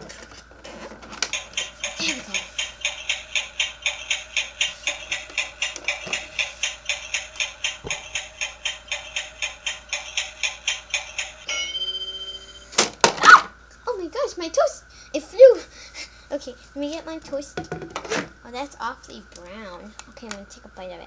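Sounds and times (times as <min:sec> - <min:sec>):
toaster timer ticking: 0:00.0 - 0:13.1, 0:16.4 - 0:21.0
ringing ding: 0:11.5 - 0:12.8.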